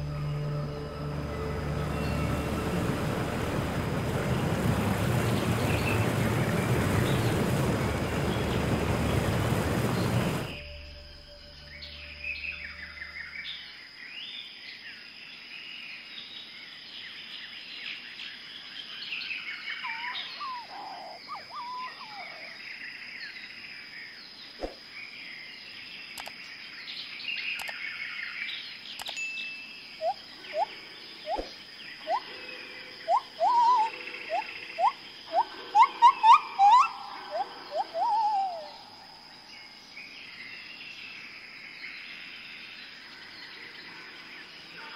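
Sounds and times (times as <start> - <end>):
birds chirping and calling: 19.7 - 22.6, 30.0 - 38.9
sharp clicks: 26.2 - 26.5, 27.6 - 27.8, 29.0 - 29.2.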